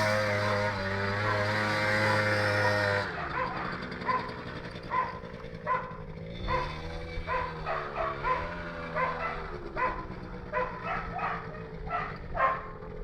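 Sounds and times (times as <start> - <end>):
atv motor running: 0.0 - 13.0
dog barking: 1.2 - 1.5, 3.2 - 12.8.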